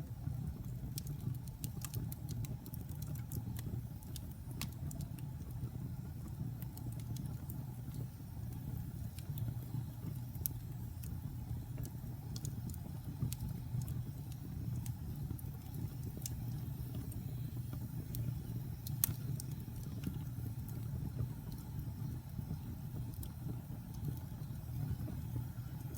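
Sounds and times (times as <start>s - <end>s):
flames rumbling: 0.0s - 25.9s
wood crackling and popping: 0.0s - 25.9s.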